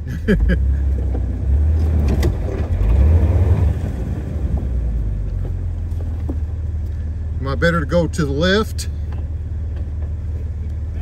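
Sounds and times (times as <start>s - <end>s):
engine deep rumble: 0.0s - 11.0s.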